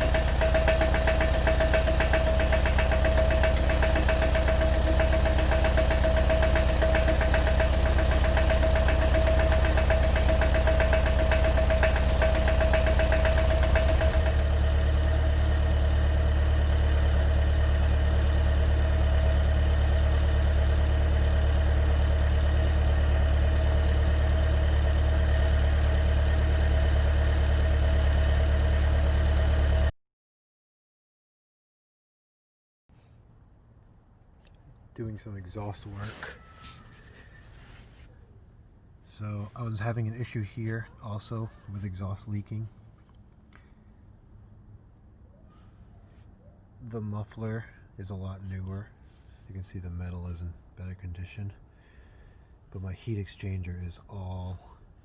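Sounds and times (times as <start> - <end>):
fast fine ticking: 0.0 - 14.8
engine idling: 0.0 - 29.9.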